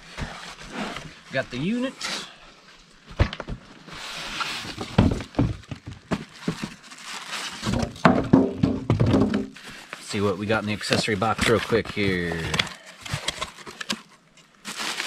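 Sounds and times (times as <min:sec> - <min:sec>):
cardboard packaging rustling: 0:03.3 - 0:08.2, 0:09.0 - 0:15.0
sharp knocks of parts set down: 0:07.7 - 0:09.5.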